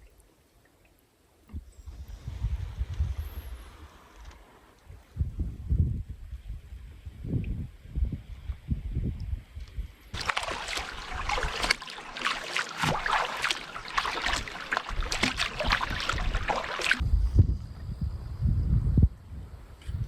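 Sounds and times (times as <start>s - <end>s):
wind buffeting microphone: 1.6s - 3.8s, 4.9s - 11.8s, 12.8s - 20.0s
water rushing and splashing: 10.2s - 17.0s.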